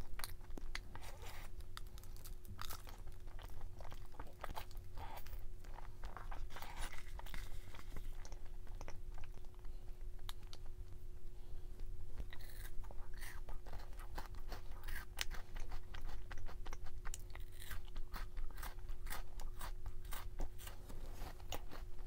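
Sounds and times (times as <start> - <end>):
person chewing crunchy food: 0.0 - 10.8, 12.2 - 22.0
faint steady hum: 0.0 - 22.0.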